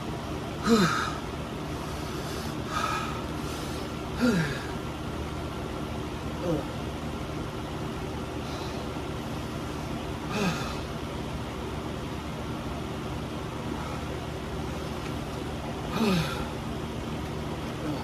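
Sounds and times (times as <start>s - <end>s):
person groaning: 0.6s - 1.1s, 4.2s - 4.6s, 6.4s - 6.8s, 16.0s - 16.5s.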